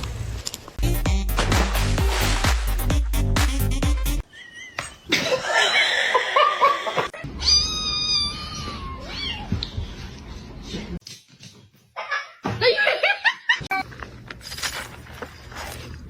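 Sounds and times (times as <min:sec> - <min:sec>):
cat meowing: 0:07.4 - 0:09.5.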